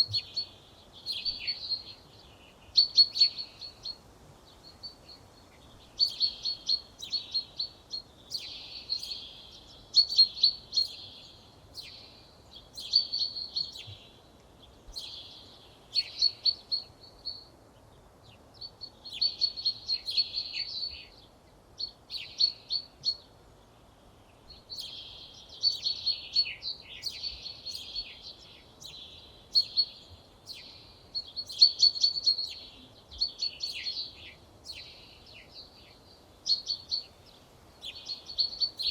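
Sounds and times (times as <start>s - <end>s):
songbird trilling: 0.0s - 4.0s, 6.0s - 12.1s, 24.6s - 37.1s, 37.8s - 38.9s.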